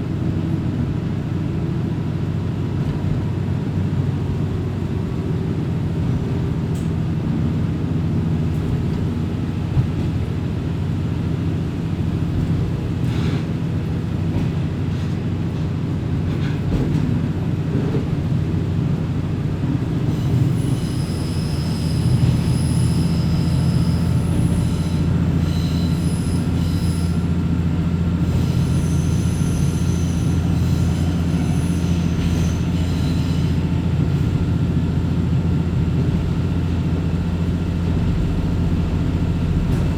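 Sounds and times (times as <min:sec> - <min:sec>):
railcar engine and rail drone: 0:00.0 - 0:39.9
wheel flange squeal: 0:20.0 - 0:34.2.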